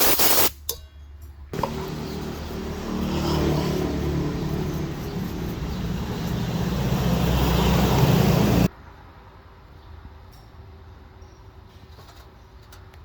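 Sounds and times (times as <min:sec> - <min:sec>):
power tool motor running: 0:01.6 - 0:08.7.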